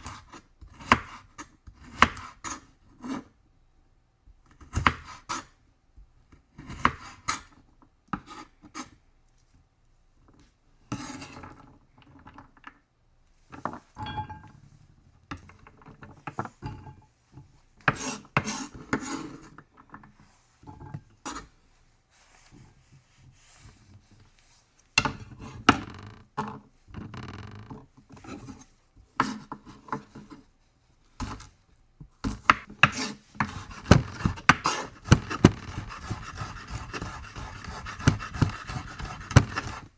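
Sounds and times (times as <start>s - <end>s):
kitchenware scraping: 13.9s - 14.8s
dishes and pots clattering: 14.0s - 14.7s.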